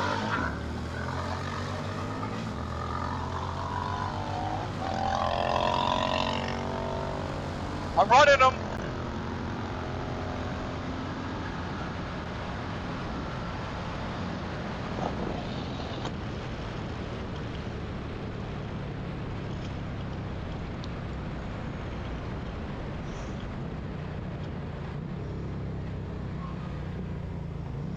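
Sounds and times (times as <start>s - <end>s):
motorcycle engine running: 0.0s - 13.2s
heavy wind noise: 10.6s - 19.6s.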